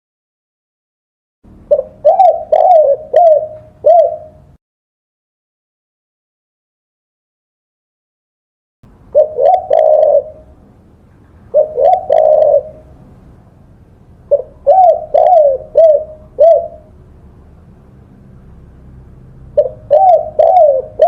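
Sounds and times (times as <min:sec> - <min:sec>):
dove cooing: 0:01.7 - 0:04.6, 0:09.1 - 0:10.6, 0:11.4 - 0:13.1, 0:14.3 - 0:16.9, 0:19.5 - 0:21.0.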